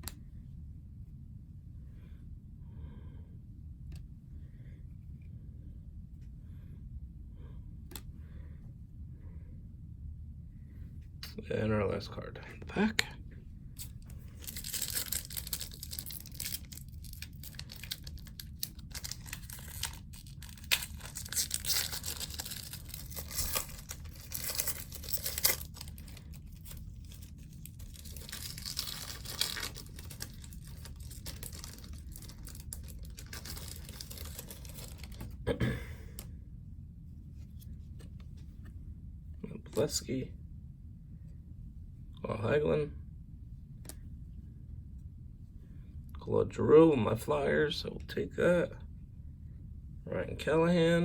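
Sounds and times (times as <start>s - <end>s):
wrapper tearing and crinkling: 13.8s - 35.3s
cards rustling and shuffling: 13.8s - 35.4s.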